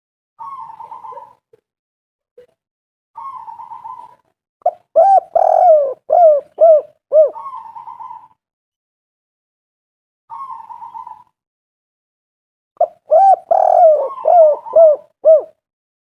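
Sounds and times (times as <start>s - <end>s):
dove cooing: 0.4s - 1.4s, 3.2s - 8.4s, 10.3s - 11.3s, 12.8s - 15.6s.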